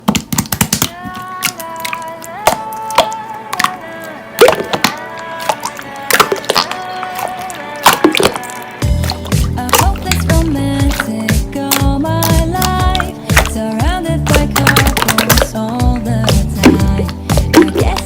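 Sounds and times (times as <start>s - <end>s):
soft background melody: 1.4s - 18.0s
slime clicking pops: 14.3s - 15.6s.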